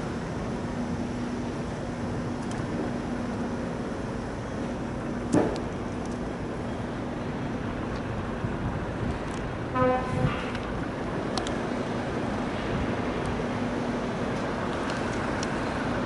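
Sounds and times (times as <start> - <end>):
short horn toot: 9.8 - 10.5.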